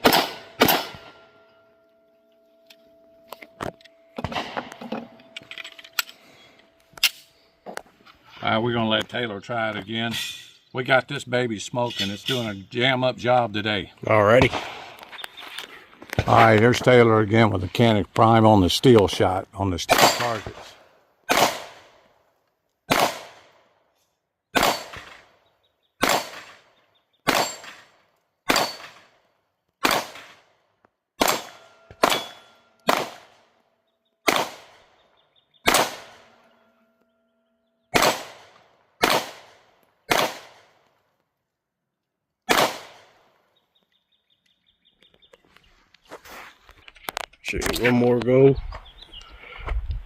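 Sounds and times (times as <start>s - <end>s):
pistol shots: 0.0s - 1.2s, 14.4s - 15.0s, 19.9s - 22.0s, 22.9s - 23.6s, 24.5s - 25.4s, 26.0s - 29.2s, 29.8s - 30.5s, 31.2s - 33.6s, 34.2s - 35.0s, 35.6s - 36.5s, 37.9s - 40.8s, 42.5s - 43.4s.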